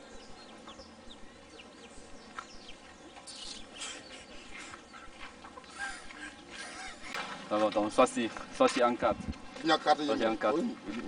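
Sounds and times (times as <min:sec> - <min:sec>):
bird chirping: 0:00.0 - 0:07.2.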